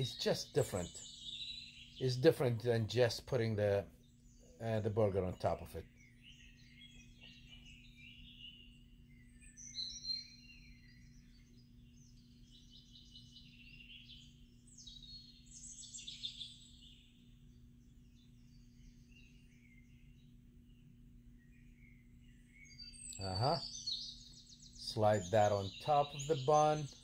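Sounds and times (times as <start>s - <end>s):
birds chirping and singing: 0.0s - 27.0s
faint steady low hum: 0.0s - 27.0s.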